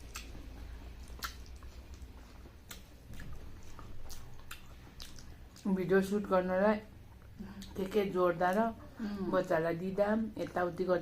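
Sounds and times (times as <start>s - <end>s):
chewing with wet mouth clicks: 0.0s - 5.8s.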